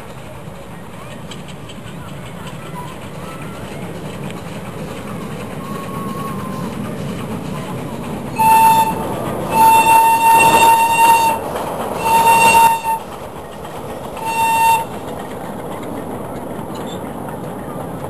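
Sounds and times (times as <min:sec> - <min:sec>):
toy train rumbling: 0:00.0 - 0:18.0
high train horn blasts: 0:08.4 - 0:13.1, 0:14.2 - 0:15.0.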